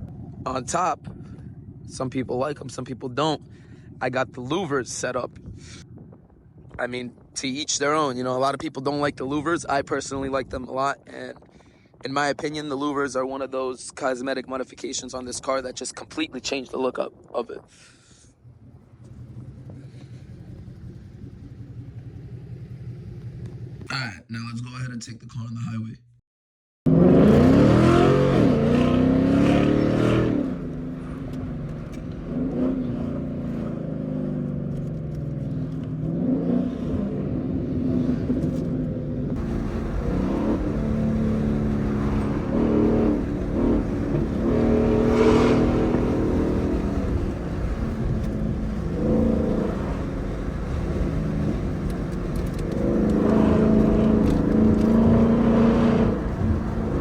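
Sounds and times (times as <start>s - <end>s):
car engine revving while driving: 26.9s - 57.0s.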